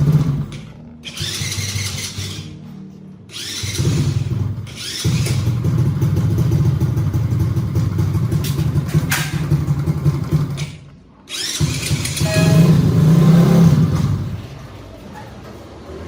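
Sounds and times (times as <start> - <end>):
small motorcycle engine starting: 0.0 - 2.7, 3.3 - 14.6.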